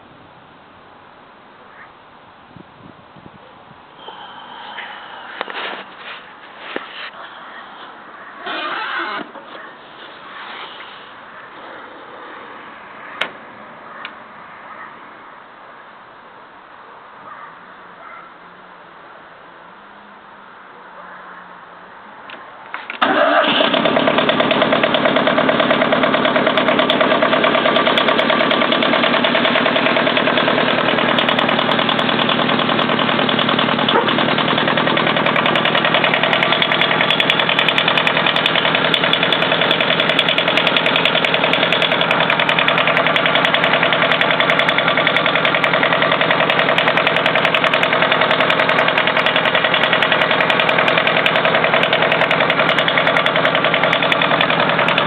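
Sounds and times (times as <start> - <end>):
tractor engine running: 7.8 - 11.5, 22.8 - 55.0.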